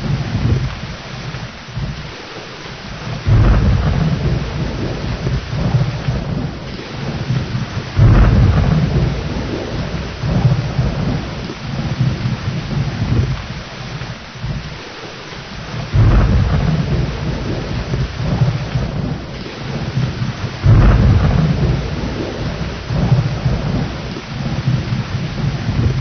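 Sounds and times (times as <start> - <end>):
rolling thunder: 0.0 - 2.2, 2.8 - 26.0
heavy rain: 0.0 - 26.0.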